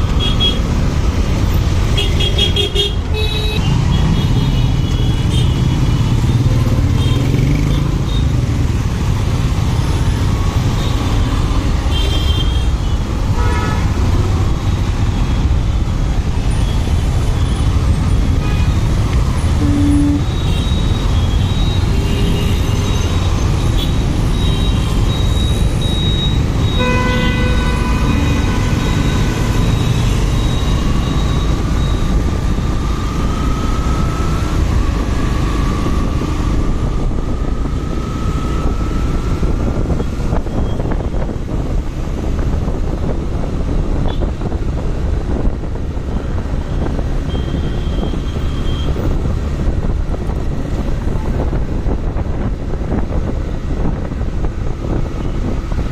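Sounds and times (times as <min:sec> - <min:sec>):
vehicle horn: 0:13.3 - 0:13.9, 0:19.6 - 0:20.7, 0:26.7 - 0:29.7
motorcycle engine and wind rumble: 0:27.6 - 0:55.9.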